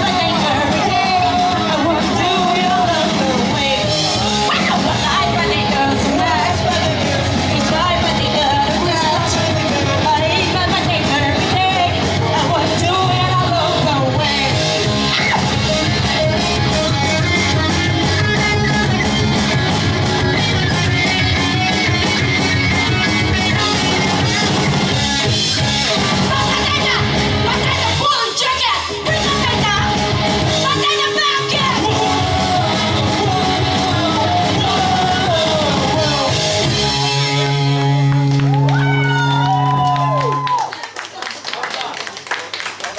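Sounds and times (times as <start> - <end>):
shouted lead vocal: 0.0 - 18.8, 25.6 - 37.4
pop-punk band playing live: 0.0 - 40.1.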